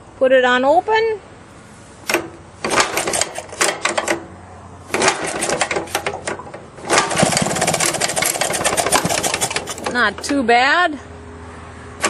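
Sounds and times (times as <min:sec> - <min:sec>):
two-stroke engine popping: 0:02.1 - 0:04.2, 0:04.9 - 0:10.5.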